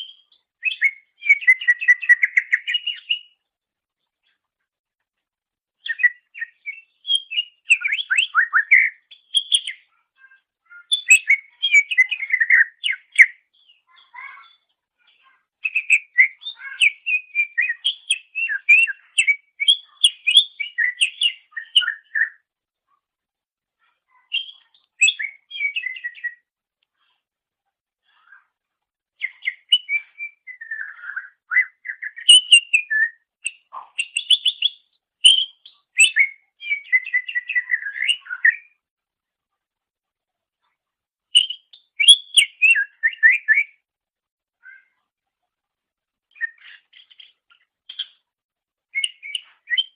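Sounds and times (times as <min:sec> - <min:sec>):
bird singing chirps and whistles: 0:00.0 - 0:03.4, 0:05.8 - 0:09.9, 0:10.7 - 0:14.6, 0:15.6 - 0:22.4, 0:24.2 - 0:26.5, 0:29.2 - 0:38.8, 0:41.3 - 0:43.8, 0:46.3 - 0:48.2, 0:48.9 - 0:49.9.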